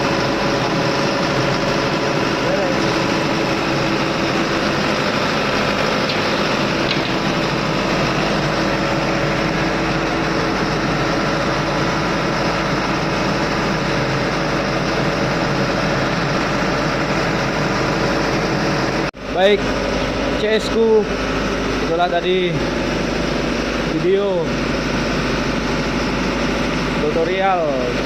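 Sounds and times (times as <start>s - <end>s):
engine room machinery drone: 0.0s - 28.0s.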